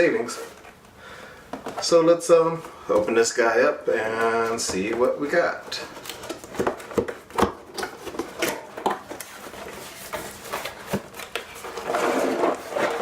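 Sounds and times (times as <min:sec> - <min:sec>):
packaging rustling: 0:04.0 - 0:13.0.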